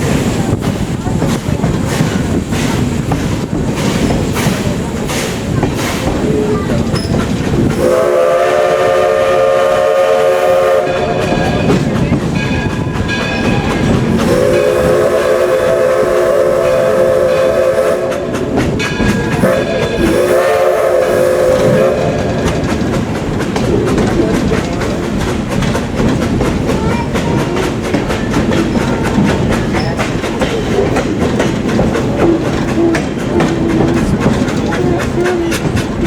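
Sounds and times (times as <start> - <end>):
train wheels clacking over rails: 0.0 - 36.0
train whistle blasts: 7.8 - 11.8, 14.2 - 18.6, 19.3 - 22.6.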